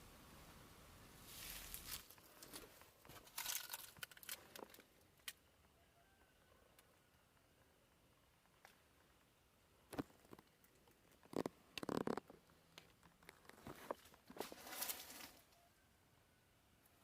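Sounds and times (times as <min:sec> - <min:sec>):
rustling: 0:01.2 - 0:05.2, 0:09.9 - 0:15.6.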